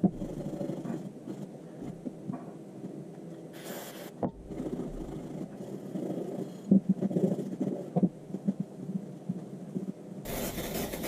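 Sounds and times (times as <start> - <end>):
short hiss: 3.6 - 4.2.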